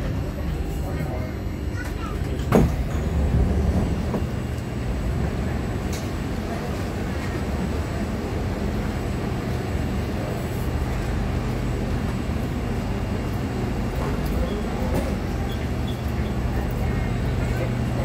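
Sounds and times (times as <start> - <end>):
train equipment humming: 0.0 - 18.0
train doors sliding open: 1.8 - 8.0.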